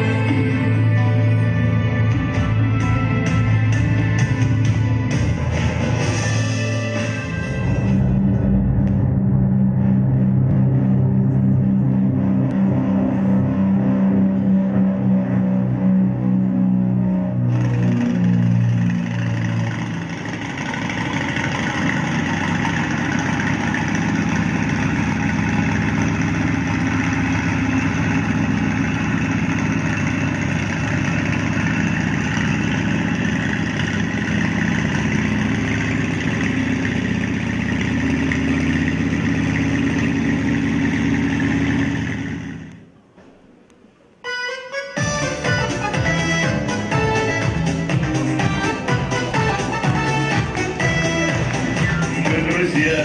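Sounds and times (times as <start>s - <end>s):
aircraft engine drone: 0.0s - 43.0s, 44.1s - 53.0s.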